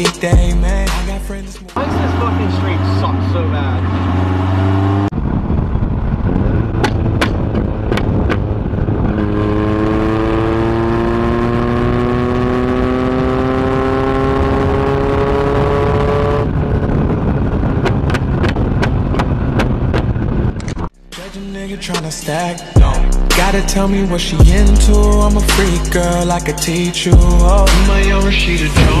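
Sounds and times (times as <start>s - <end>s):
music: 0.0s - 1.8s, 21.0s - 29.0s
car engine revving: 0.0s - 29.0s
exhaust pops: 5.2s - 9.3s, 17.0s - 20.9s.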